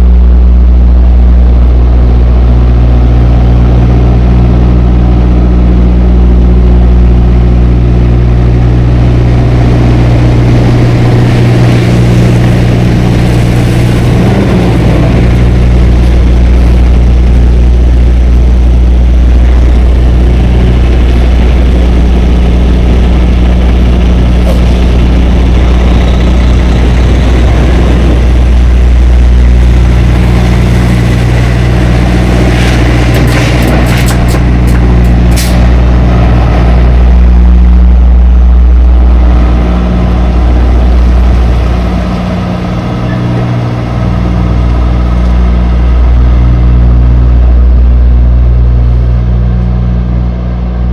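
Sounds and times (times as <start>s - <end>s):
diesel truck engine droning: 0.0s - 50.9s.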